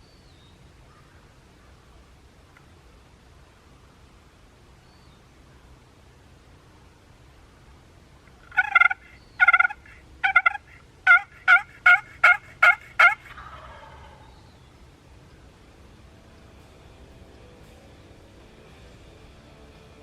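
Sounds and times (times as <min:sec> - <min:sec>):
turkey yelps: 0:08.4 - 0:14.5.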